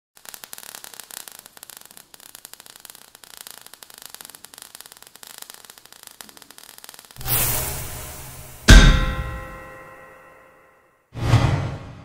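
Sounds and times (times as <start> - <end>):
crackling static hiss: 0.2 - 8.7.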